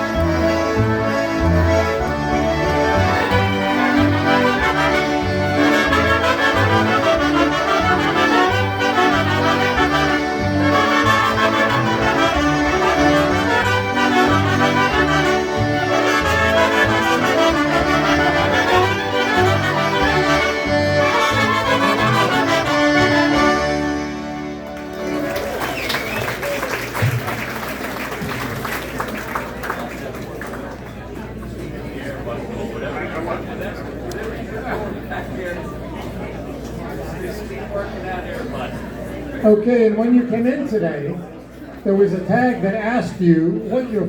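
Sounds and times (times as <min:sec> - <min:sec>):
concertinas playing polka: 0:00.0 - 0:28.5.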